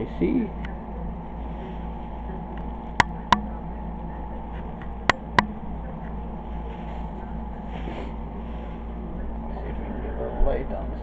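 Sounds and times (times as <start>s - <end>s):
cooling fans whirring: 0.0s - 11.0s
sharp clicks: 3.0s - 3.5s.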